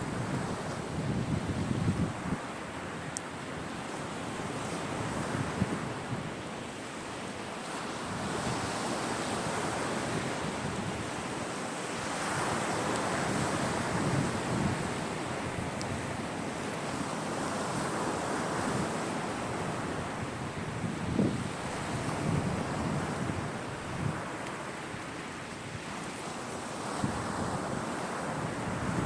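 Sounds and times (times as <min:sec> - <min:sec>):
waves washing on shore: 0:00.0 - 0:29.0
wind on microphone: 0:00.0 - 0:29.0.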